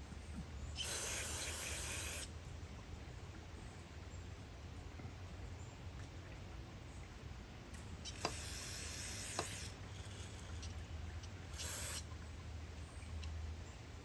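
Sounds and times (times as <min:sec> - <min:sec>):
spray can hissing: 0:00.8 - 0:02.2, 0:11.6 - 0:12.0.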